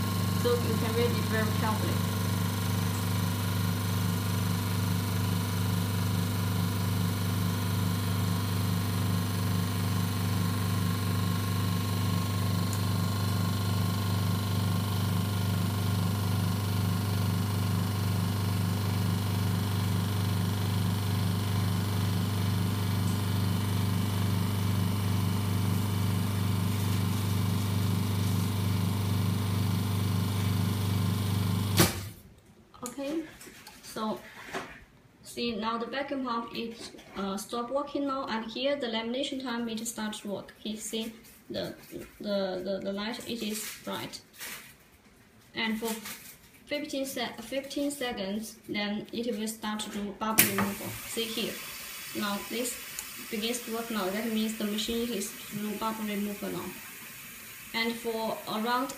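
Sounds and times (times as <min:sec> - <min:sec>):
vacuum pump humming: 0:00.0 - 0:32.2, 0:50.4 - 0:58.9.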